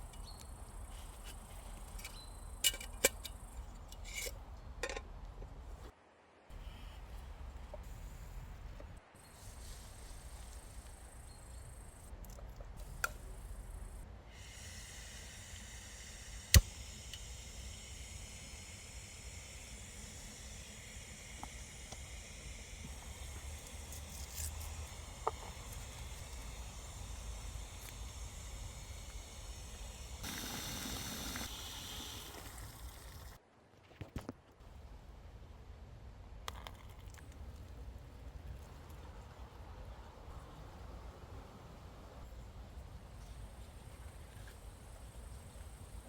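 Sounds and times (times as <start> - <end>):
gas stove burner hissing: 12.8 - 33.4.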